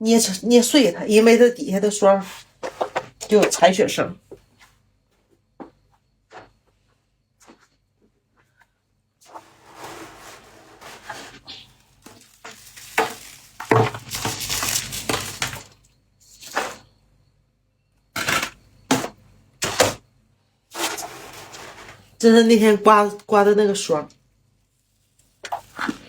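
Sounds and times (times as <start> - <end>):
frost crunching by hand: 11.5 - 15.7.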